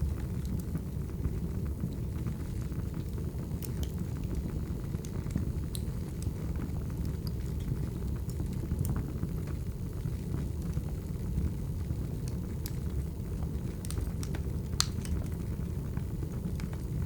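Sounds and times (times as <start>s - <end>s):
firewood crackling: 0.1s - 17.0s
sharp pops of burning wood: 13.7s - 15.4s.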